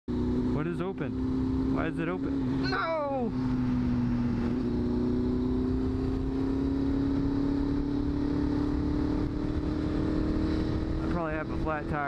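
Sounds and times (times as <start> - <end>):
motorcycle engine running: 0.1 - 12.0.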